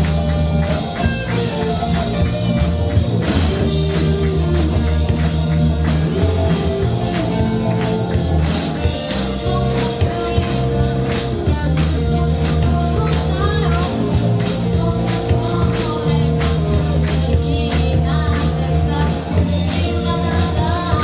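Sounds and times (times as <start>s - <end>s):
drum kit beat: 0.0s - 21.0s
rock band playing: 0.0s - 21.0s.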